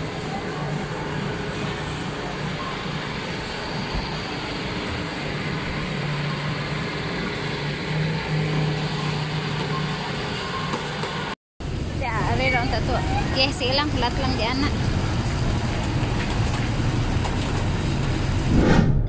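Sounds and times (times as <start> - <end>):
tyres rumbling on road: 3.5 - 18.5.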